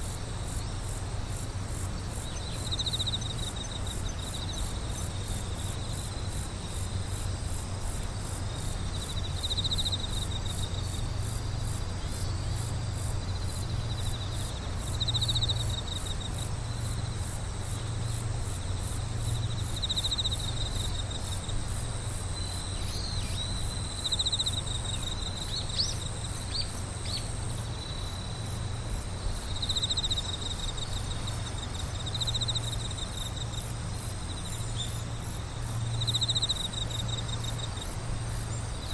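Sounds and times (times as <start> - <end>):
steady high insect trill: 0.0 - 38.9
short insect trills: 0.5 - 38.9.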